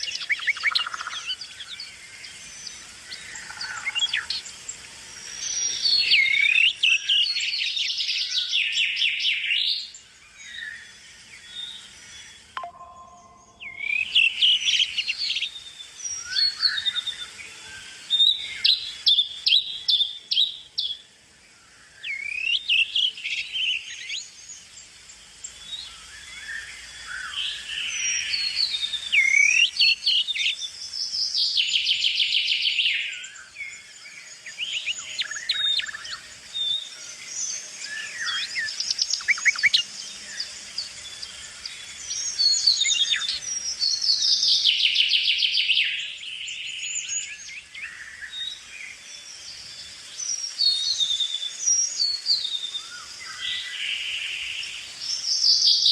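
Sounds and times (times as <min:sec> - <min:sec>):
songbirds chirping: 0:00.0 - 0:55.9
bird trills: 0:11.4 - 0:20.6, 0:34.4 - 0:40.6.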